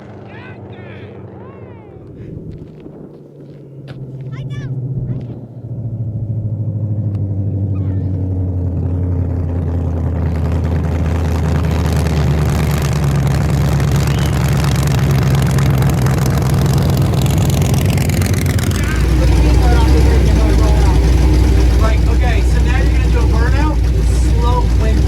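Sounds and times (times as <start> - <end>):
truck engine running: 0.0 - 25.0
rushing noise: 13.8 - 25.0.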